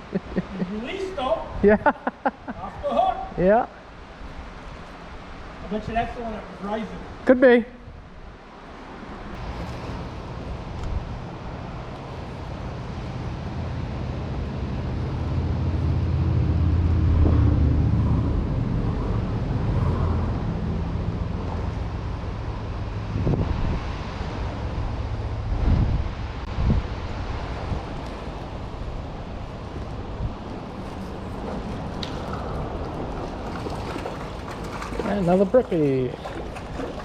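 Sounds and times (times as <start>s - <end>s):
outdoor background rush: 0.0s - 37.0s
vehicle engine and tyre rumble: 7.9s - 37.0s.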